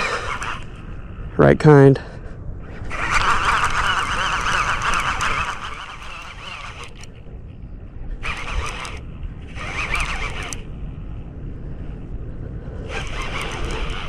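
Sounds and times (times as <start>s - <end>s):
fishing reel drag buzzing: 0.0s - 1.2s, 2.6s - 11.3s, 12.7s - 14.0s
wind and water rumble: 0.0s - 14.0s.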